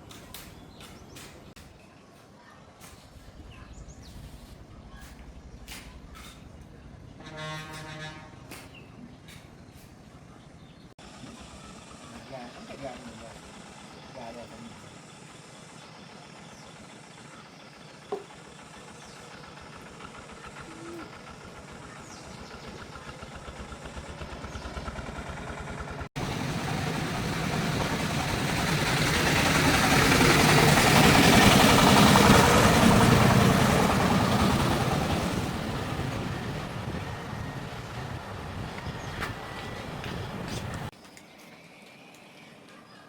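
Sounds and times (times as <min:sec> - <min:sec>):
vehicle engine running: 0:11.0 - 0:40.9.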